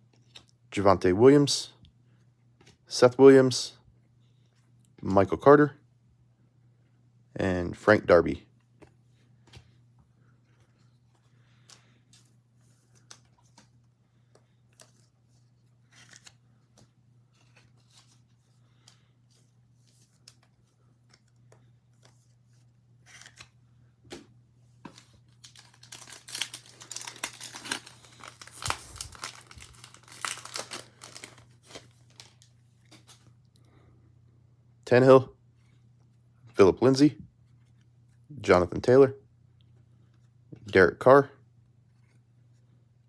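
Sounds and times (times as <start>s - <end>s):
card pack wrapper tearing: 25.3s - 33.2s.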